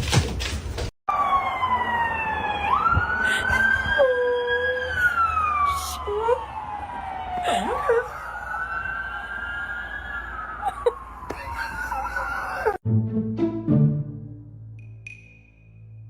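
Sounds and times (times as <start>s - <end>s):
siren wailing: 1.1s - 12.8s.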